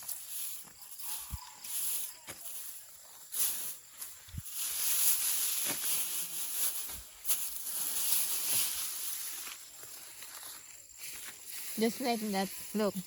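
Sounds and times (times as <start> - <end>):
rice stalks rustling: 0.0 - 13.0.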